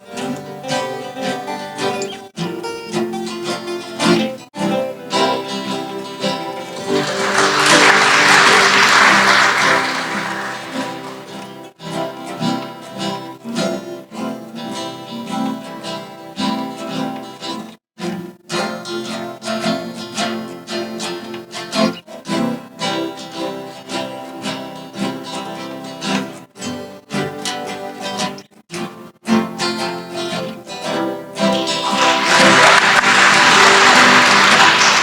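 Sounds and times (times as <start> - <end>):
acoustic guitars playing blues: 0.0 - 35.0
audience applause: 5.8 - 11.7, 31.7 - 35.0.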